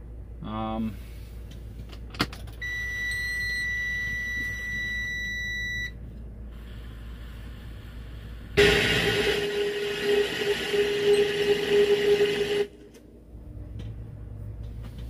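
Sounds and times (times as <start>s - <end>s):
high electronic beep: 9.3s - 12.7s.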